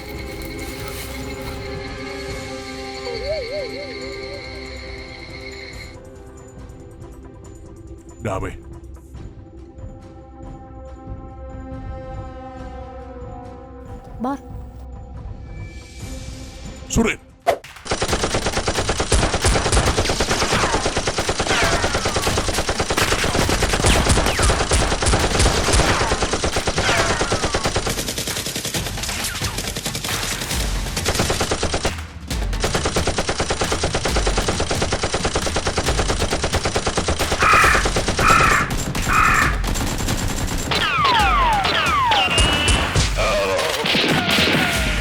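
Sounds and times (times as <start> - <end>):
descending whistling tones: 2.3 - 6.0, 40.8 - 44.6
automatic gunfire: 17.8 - 45.0.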